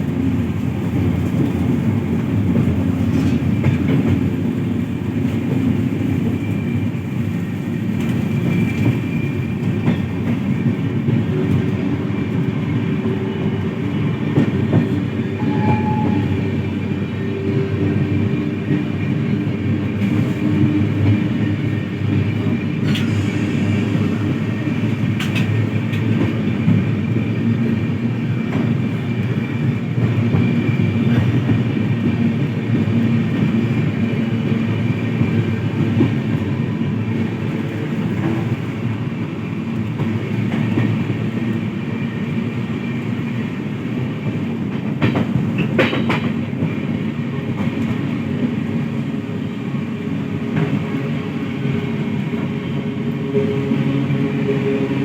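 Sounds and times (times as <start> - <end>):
train rumbling: 0.0 - 55.0
train wheel clicks: 44.3 - 46.8.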